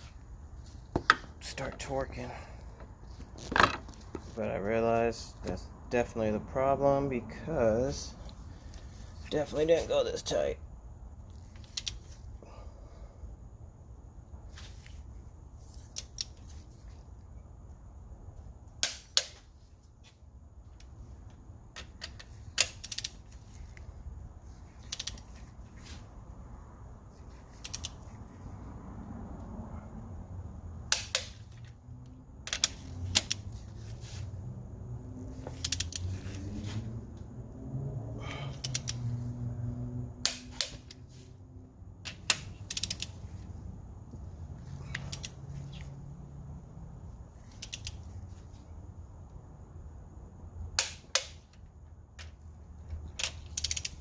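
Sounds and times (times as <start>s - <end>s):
torque wrench clicks: 22.6s - 23.2s, 24.8s - 25.2s, 27.6s - 28.0s, 35.6s - 36.1s, 38.6s - 39.0s, 42.2s - 43.2s, 44.9s - 45.4s, 47.5s - 48.0s, 53.2s - 54.0s.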